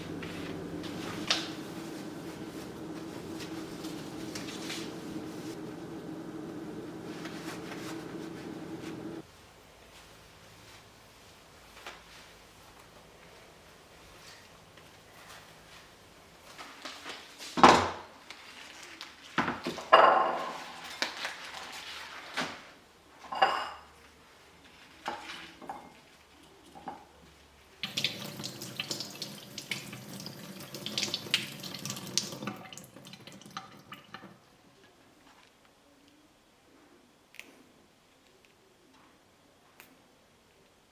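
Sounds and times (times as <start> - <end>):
dishes and utensils clinking: 23.2 - 24.0.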